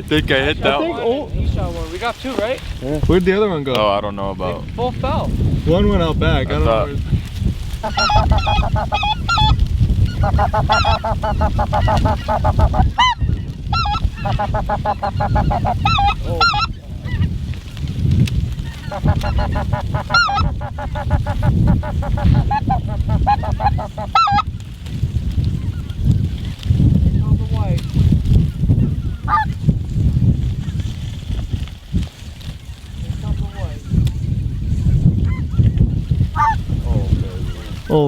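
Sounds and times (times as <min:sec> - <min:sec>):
geese honking: 0:07.8 - 0:17.4, 0:18.6 - 0:24.5, 0:29.2 - 0:29.5, 0:36.4 - 0:36.6.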